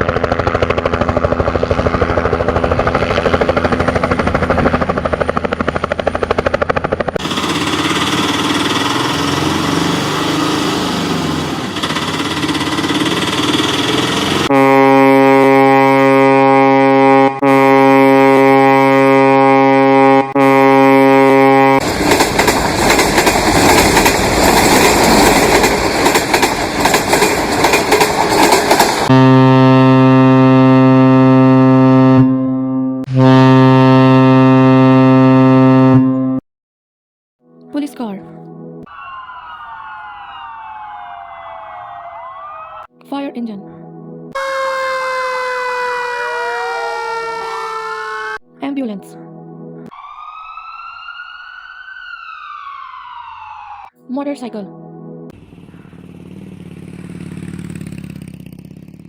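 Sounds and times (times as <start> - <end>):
engine running with fast rattle: 0.0 - 14.5, 55.4 - 59.0
long horn-like blast: 14.2 - 21.8, 29.0 - 36.4, 43.8 - 48.5
deep horn-like tone: 14.4 - 21.8, 29.1 - 36.4.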